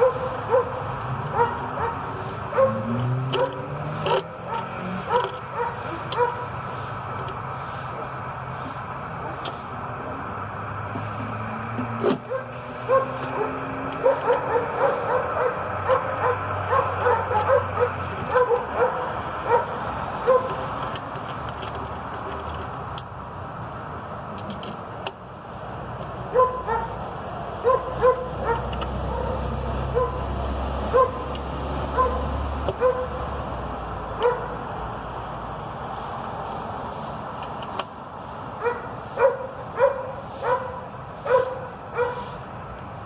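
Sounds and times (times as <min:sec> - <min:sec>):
dog yipping: 0:00.0 - 0:06.4, 0:12.3 - 0:20.5, 0:26.3 - 0:27.0, 0:27.6 - 0:29.4, 0:30.0 - 0:30.2, 0:30.9 - 0:31.2, 0:32.0 - 0:32.2, 0:32.8 - 0:33.1, 0:34.2 - 0:34.5, 0:38.6 - 0:42.3.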